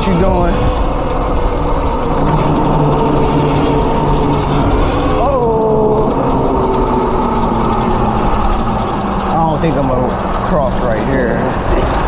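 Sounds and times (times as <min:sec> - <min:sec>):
dense rushing noise: 0:00.0 - 0:12.0
electric motor whining: 0:00.0 - 0:12.0.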